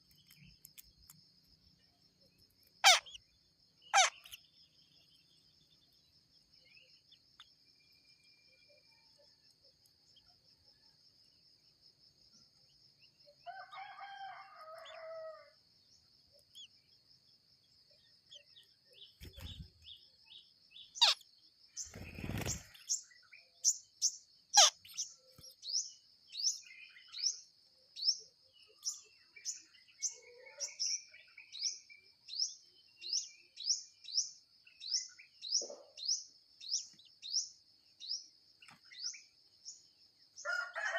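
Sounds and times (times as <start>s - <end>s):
nestlings begging chirps: 0.0s - 8.3s, 18.3s - 20.0s, 20.7s - 23.0s, 23.6s - 27.4s
rooster crowing: 13.5s - 15.6s, 40.4s - 40.9s
high insect whine: 21.7s - 23.1s.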